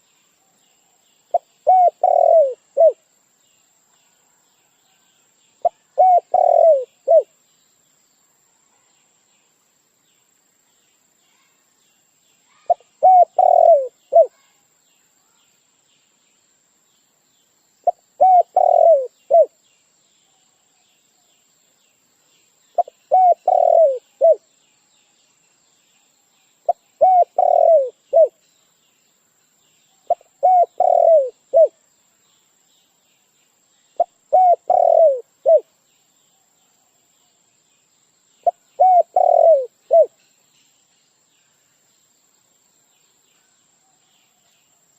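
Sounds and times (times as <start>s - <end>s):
dove cooing: 1.3s - 3.0s, 5.6s - 7.3s, 13.0s - 14.3s, 17.9s - 19.5s, 22.8s - 24.4s, 27.0s - 28.4s, 30.1s - 31.8s, 34.0s - 35.7s, 38.4s - 40.1s.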